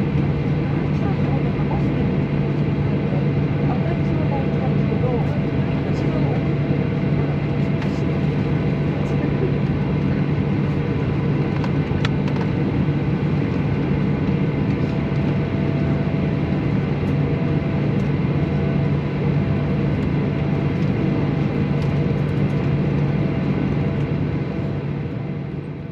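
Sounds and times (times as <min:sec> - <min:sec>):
jet engines idling: 0:00.0 - 0:25.8.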